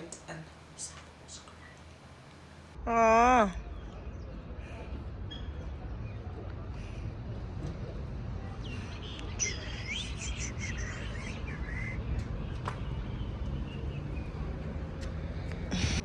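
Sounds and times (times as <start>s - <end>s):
bird twittering: 9.0s - 12.2s.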